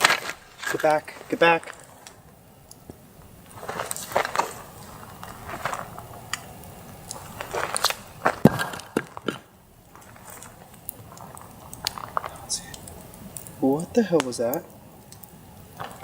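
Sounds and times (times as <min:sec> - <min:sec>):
footsteps crunching leaf litter: 0:00.0 - 0:02.3, 0:02.9 - 0:06.5, 0:07.2 - 0:11.4
twigs snapping: 0:00.0 - 0:16.0.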